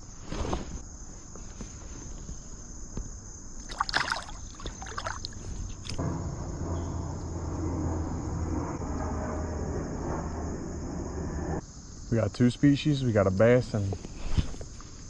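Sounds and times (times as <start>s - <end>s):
water splashing and sloshing: 3.6s - 6.0s
steady low rushing noise: 5.7s - 11.6s.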